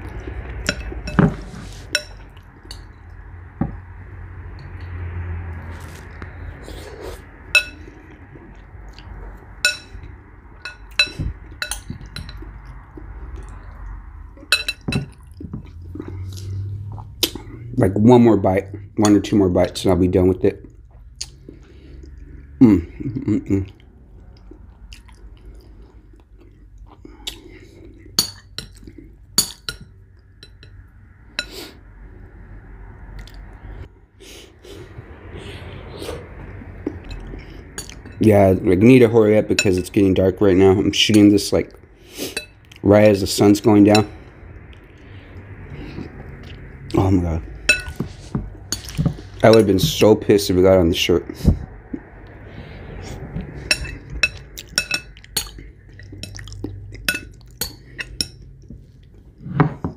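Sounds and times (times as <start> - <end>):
low steady hum: 0.0 - 59.9
spoon clinking against bowl: 0.7 - 2.9, 7.6 - 7.9, 9.6 - 10.0, 10.6 - 12.5, 14.5 - 15.2, 42.4 - 42.6, 47.7 - 48.1, 53.6 - 58.4.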